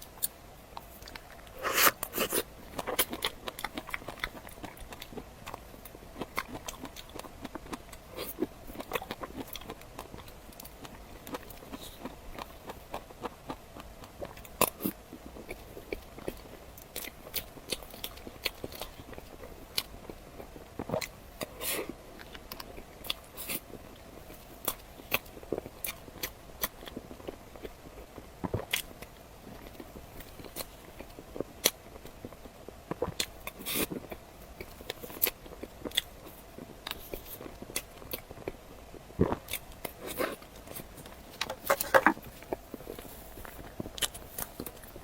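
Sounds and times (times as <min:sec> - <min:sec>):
chewing: 0:00.2 - 0:45.0
wet mouth sounds: 0:01.0 - 0:04.4.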